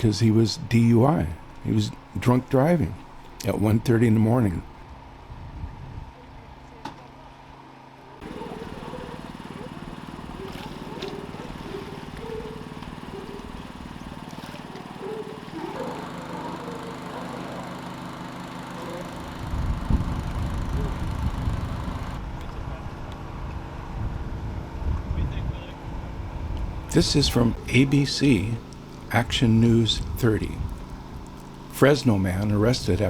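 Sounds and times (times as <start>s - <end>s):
wind buffeting microphone: 5.0s - 6.2s, 19.4s - 21.9s
engine idling: 8.2s - 22.2s, 26.2s - 33.0s.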